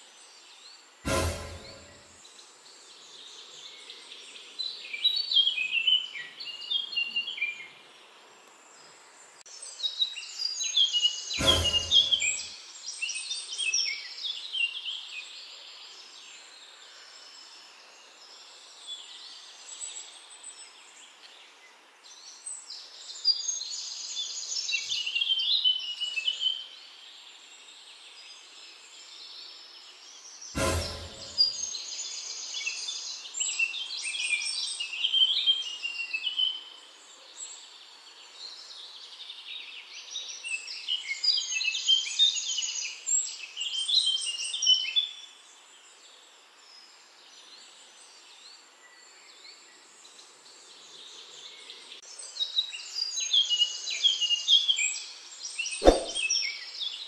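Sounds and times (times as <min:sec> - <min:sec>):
faint background hiss: 0:00.0 - 0:57.0
songbirds chirping: 0:00.0 - 0:57.0
sharp thump: 0:01.1 - 0:02.0, 0:11.4 - 0:12.4, 0:30.6 - 0:31.5, 0:55.8 - 0:56.2.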